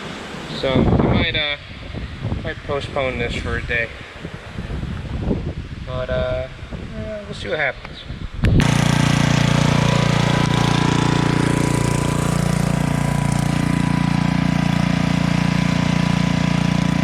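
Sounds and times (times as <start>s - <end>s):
generator engine drone: 8.6s - 17.0s.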